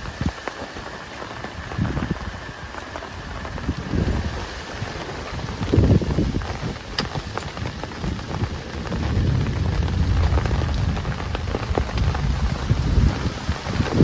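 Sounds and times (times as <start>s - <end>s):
heavy rain falling: 0.0s - 14.0s
raindrops ticking: 0.0s - 14.0s
deep low rumble: 7.9s - 14.0s.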